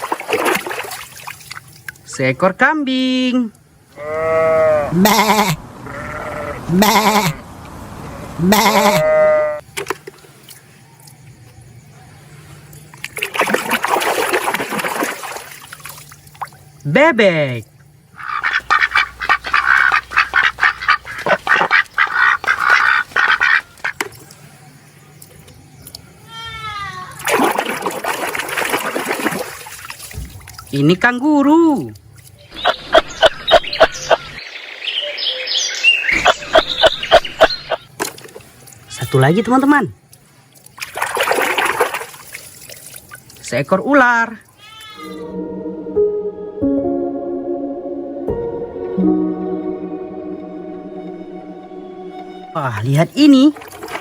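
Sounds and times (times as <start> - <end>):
water splashing and trickling: 0.0 - 2.5, 9.6 - 11.5, 12.2 - 26.2, 26.8 - 32.6, 37.8 - 45.0, 52.6 - 54.0
animal twittering: 18.2 - 24.0, 32.4 - 37.9
animal clicking calls: 18.2 - 24.4.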